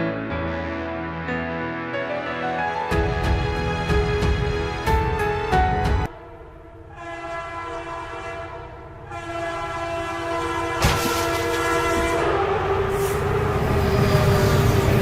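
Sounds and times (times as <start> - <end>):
vehicle horn blast: 6.9 - 13.1.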